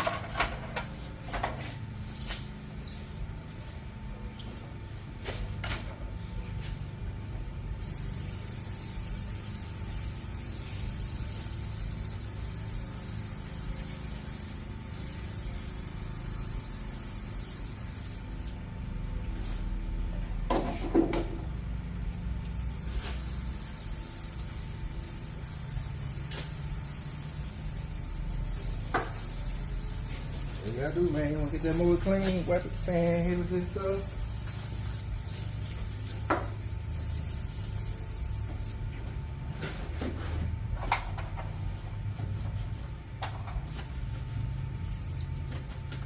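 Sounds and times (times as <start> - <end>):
spray can hissing: 7.8 - 18.6, 22.5 - 38.8, 44.8 - 45.4.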